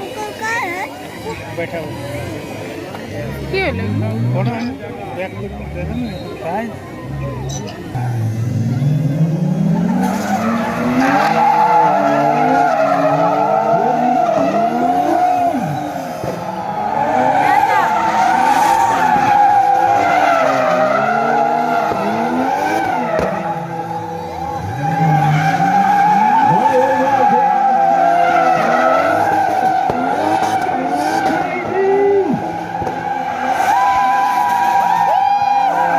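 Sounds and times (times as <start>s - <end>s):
engines revving: 0.0s - 35.9s.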